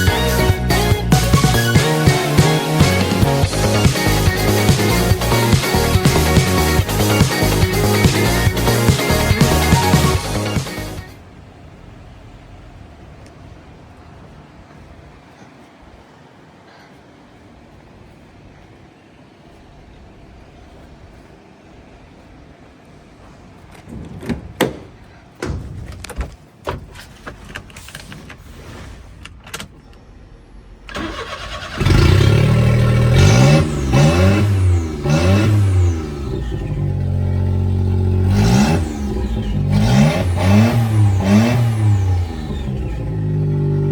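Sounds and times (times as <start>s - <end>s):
car engine starting and revving: 0.0s - 14.3s, 30.4s - 43.9s
clicks and knocks: 23.7s - 28.4s.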